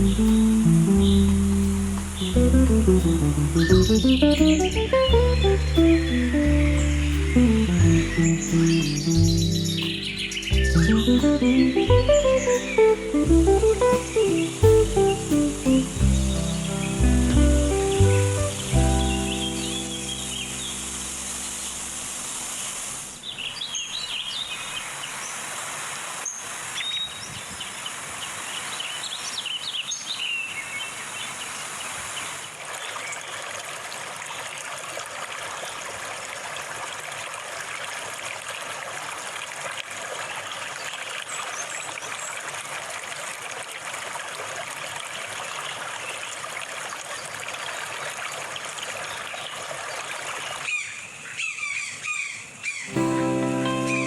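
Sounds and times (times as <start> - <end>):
water trickling: 0.0 - 23.3, 32.5 - 50.7
bird chirps: 3.3 - 21.7.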